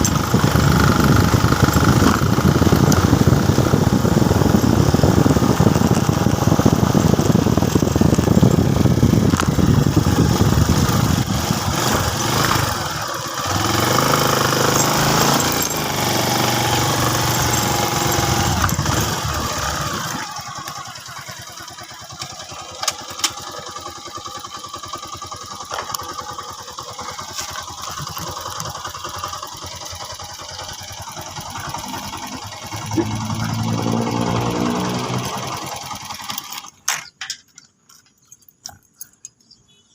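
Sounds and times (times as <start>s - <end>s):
heavy wind noise: 0.0s - 12.8s
motorcycle engine running: 0.0s - 36.8s.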